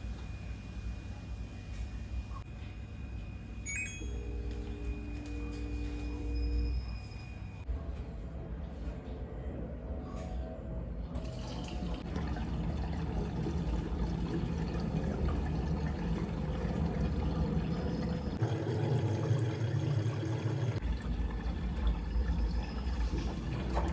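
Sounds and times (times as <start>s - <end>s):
water filling a container: 11.2s - 23.9s.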